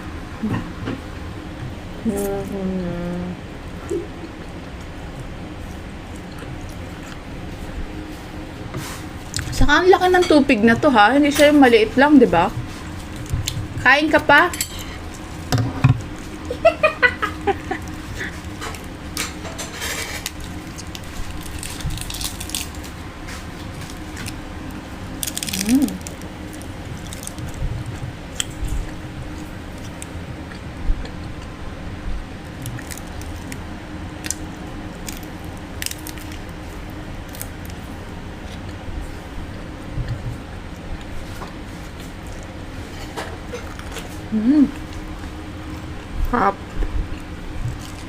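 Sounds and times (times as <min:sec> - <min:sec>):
steady low hum: 0:00.0 - 0:48.0
chewing and mouth clicks: 0:03.8 - 0:07.2.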